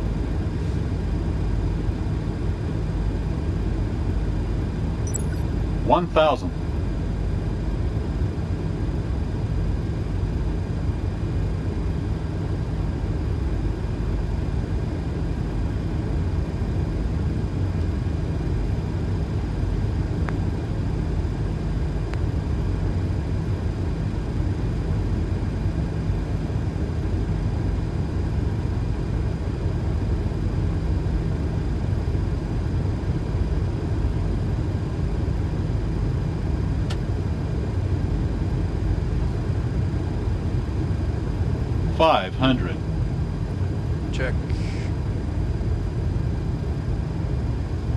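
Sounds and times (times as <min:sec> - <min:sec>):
airflow and engine rumble: 0:36.6 - 0:47.9.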